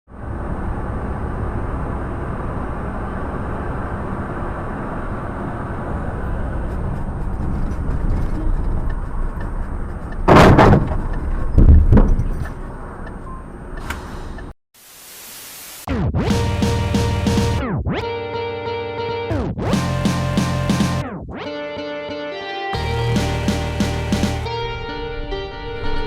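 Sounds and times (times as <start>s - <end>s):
car driving: 0.1s - 10.3s
loud collision impact: 10.3s - 11.0s.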